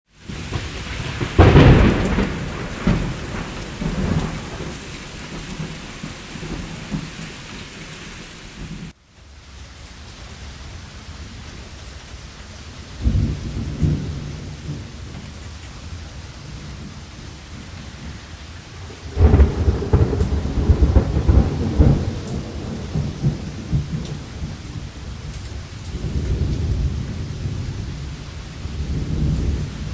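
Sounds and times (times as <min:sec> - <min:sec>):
steady rain: 0:00.1 - 0:29.9
rolling thunder: 0:00.2 - 0:08.9, 0:13.0 - 0:15.4, 0:19.0 - 0:29.9.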